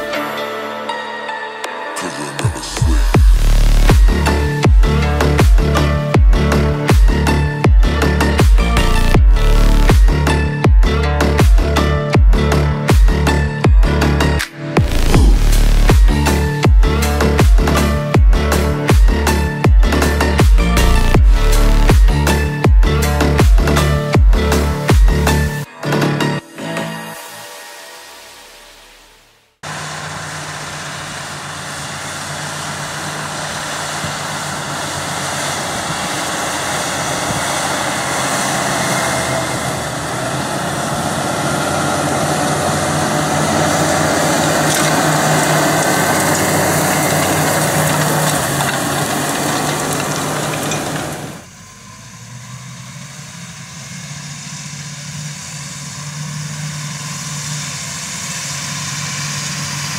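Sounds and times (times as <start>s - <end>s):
tractor diesel engine running: 2.0s - 25.7s, 29.6s - 59.9s.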